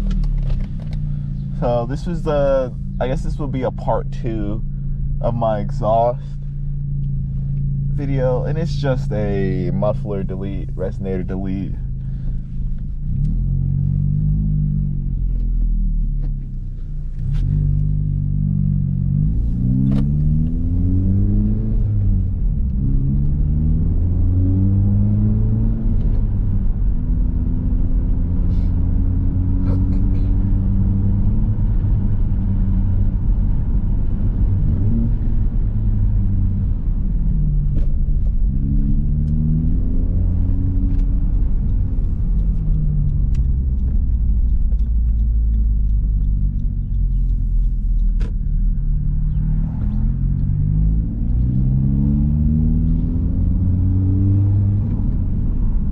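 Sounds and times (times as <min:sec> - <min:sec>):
car engine revving through gears: 0:06.8 - 0:16.4, 0:17.1 - 0:55.9.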